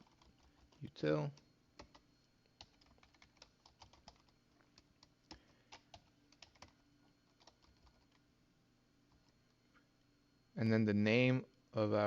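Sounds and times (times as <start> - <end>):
faint typing on keyboard: 0.0 - 8.3, 9.1 - 9.6.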